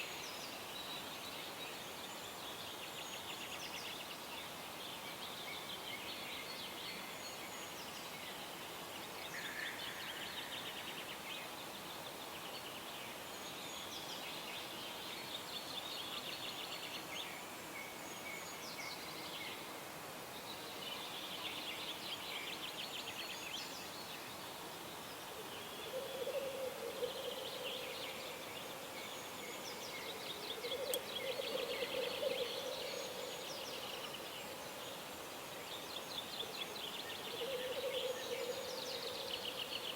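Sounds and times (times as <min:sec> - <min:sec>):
faint background hiss: 0:00.0 - 0:39.9
songbirds trilling: 0:20.4 - 0:39.9.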